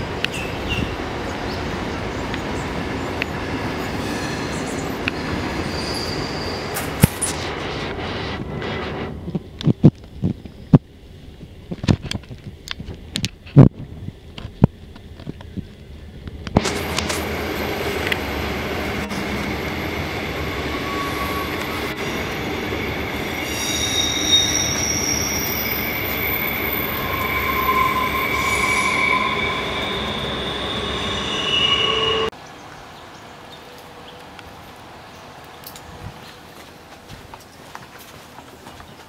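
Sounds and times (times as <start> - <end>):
rumble of train wheels: 0.0 - 39.0
train wheel squeal: 3.8 - 7.0, 17.6 - 32.4.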